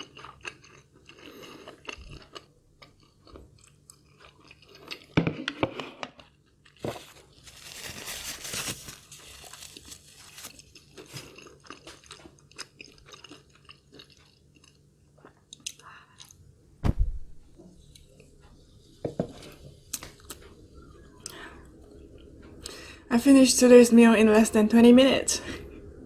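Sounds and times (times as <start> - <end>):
person chewing and crunching food: 0.0 - 16.5, 19.4 - 22.8
loud thump: 16.8 - 17.6.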